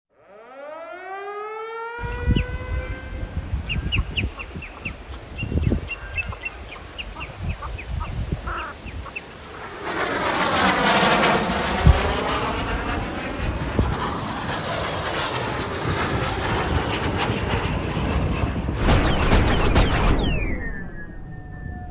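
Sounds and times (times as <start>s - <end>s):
birds calling sharp notes: 2.0s - 9.6s
wind buffeting microphone: 2.0s - 14.0s
aircraft passing overhead: 2.0s - 21.9s.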